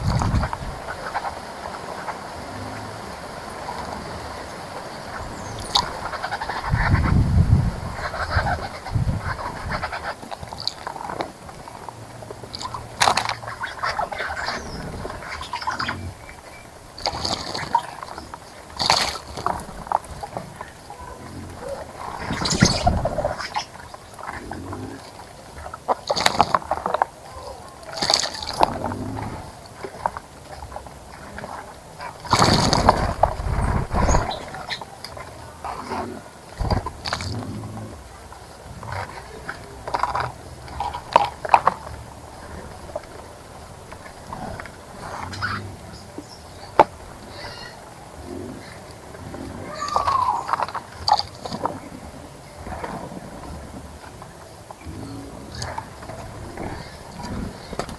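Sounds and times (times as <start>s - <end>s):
birds splashing in water: 0.0s - 57.9s
bird splashing in water: 16.9s - 24.4s, 27.8s - 28.9s, 29.9s - 34.8s.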